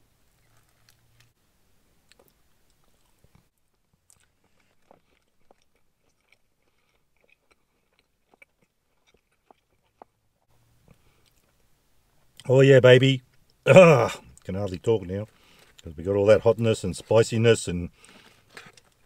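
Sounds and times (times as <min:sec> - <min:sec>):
crunchy chewing: 0:00.4 - 0:01.4, 0:02.1 - 0:11.6, 0:15.2 - 0:16.0, 0:16.6 - 0:19.0.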